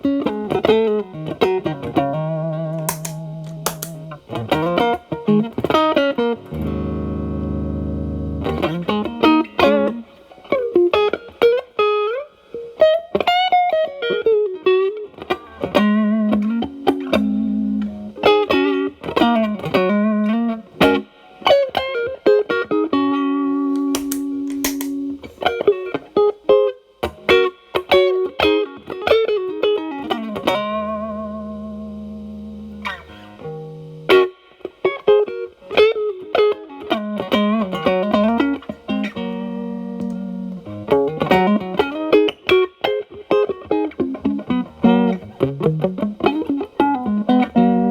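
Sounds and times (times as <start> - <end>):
overdriven electric guitar lead lines: 0.0 - 47.9
electric guitar chords ringing: 2.0 - 10.0, 37.0 - 42.6.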